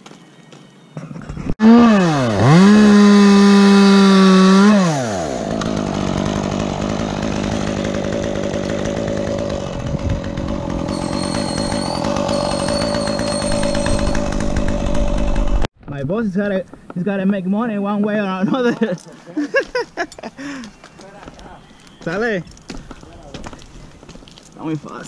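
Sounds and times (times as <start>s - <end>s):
chainsaw revving: 1.6s - 15.7s.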